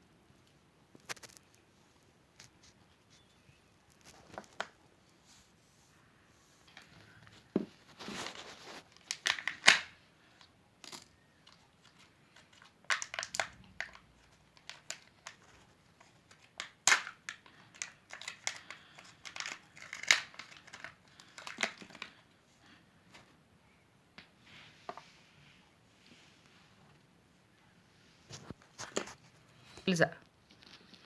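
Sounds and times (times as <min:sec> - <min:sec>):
wrapper crinkling and tearing: 0:01.0 - 0:01.6, 0:07.8 - 0:10.0, 0:10.8 - 0:22.2.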